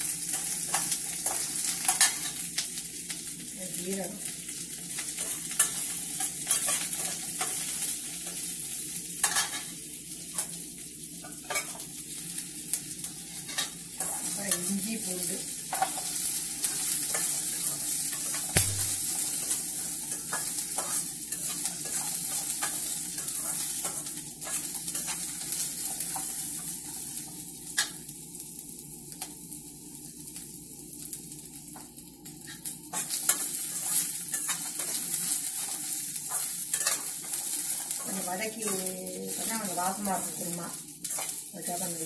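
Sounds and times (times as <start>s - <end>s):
vegetables sizzling in oil: 0.0s - 42.0s
metal spatula scraping pan: 36.3s - 37.1s.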